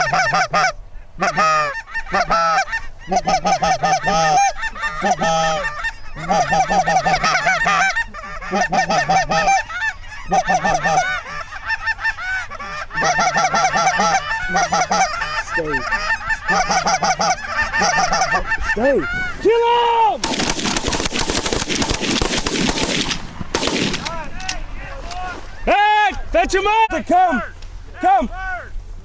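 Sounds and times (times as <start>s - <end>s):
goose honking: 0.0s - 19.5s.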